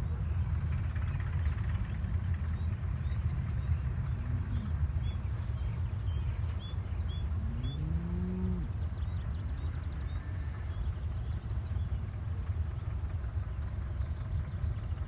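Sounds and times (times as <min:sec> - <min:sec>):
steady low rumble: 0:00.0 - 0:15.0
cow mooing: 0:07.4 - 0:08.8.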